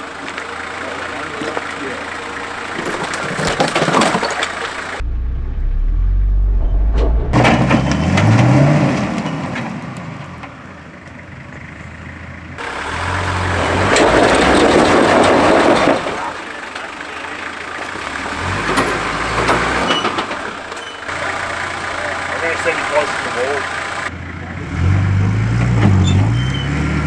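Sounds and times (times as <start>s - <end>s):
rocks crunching under tyres: 0.0s - 5.0s, 12.6s - 24.1s
off-road vehicle engine revving: 0.0s - 27.0s.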